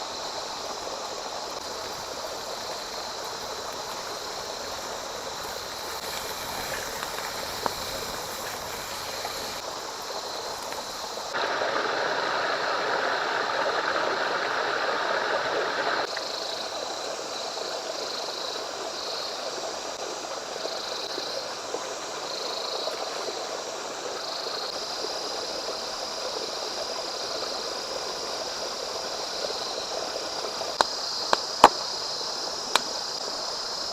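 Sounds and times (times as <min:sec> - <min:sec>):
stream rushing: 0:00.0 - 0:18.0.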